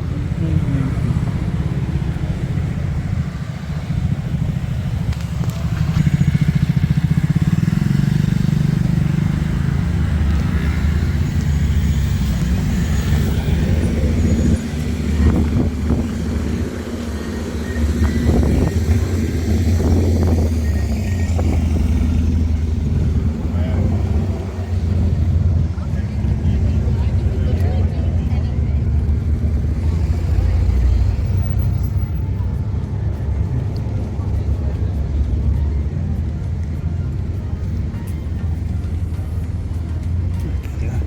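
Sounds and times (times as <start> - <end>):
road noise: 0.0 - 41.0
vehicle engine running: 0.0 - 41.0.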